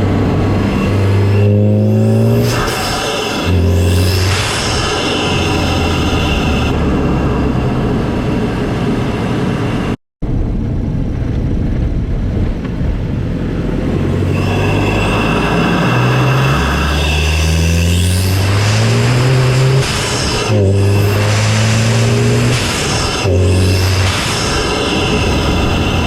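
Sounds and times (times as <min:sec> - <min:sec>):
turbo whistle: 0:14.3 - 0:22.0.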